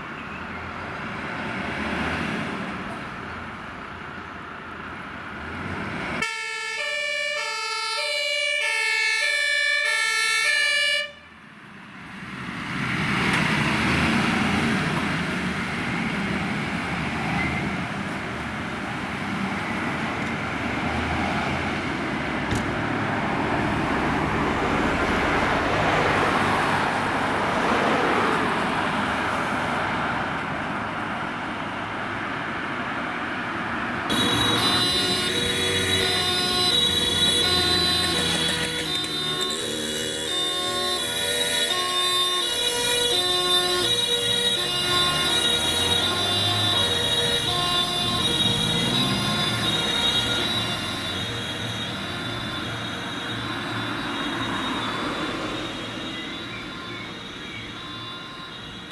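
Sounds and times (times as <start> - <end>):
vehicle and road noise: 0.0 - 58.9
two-tone fire engine siren: 6.2 - 11.6, 34.1 - 58.9.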